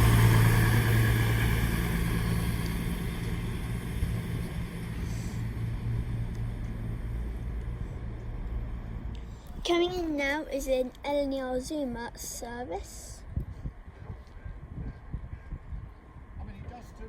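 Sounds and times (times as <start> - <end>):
train rolling noise: 0.0 - 13.2
train engine drone: 0.0 - 16.4.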